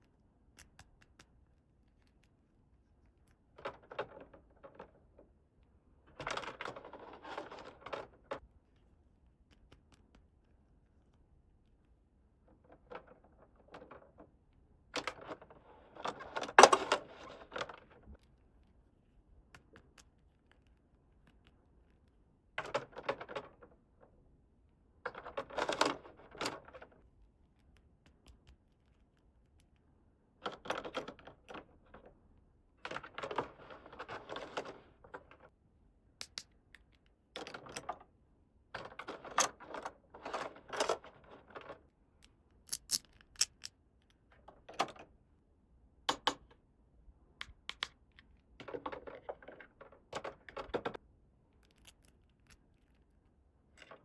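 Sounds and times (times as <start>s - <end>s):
plastic toy pieces clicking: 36.2s - 36.4s, 42.7s - 43.7s.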